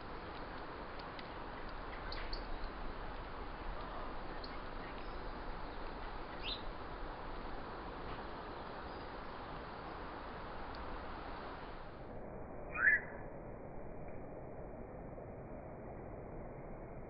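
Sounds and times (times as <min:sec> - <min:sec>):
steady background hiss: 0:00.0 - 0:17.0
high bird chirps: 0:12.7 - 0:13.2.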